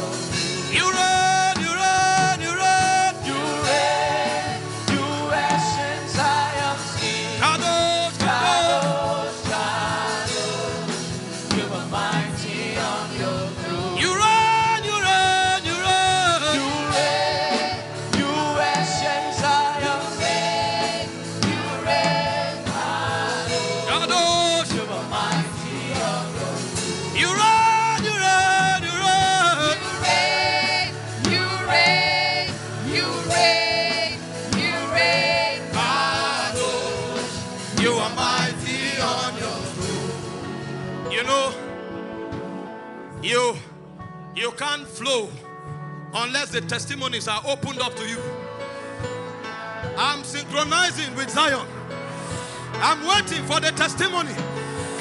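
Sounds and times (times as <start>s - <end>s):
gospel singing: 0.0s - 43.4s
instrumental backing: 0.0s - 55.0s.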